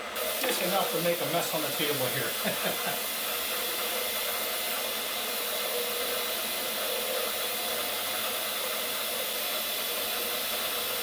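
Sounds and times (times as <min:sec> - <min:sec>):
milling machine humming: 0:00.0 - 0:11.0
compressed air jet hissing: 0:00.2 - 0:05.6.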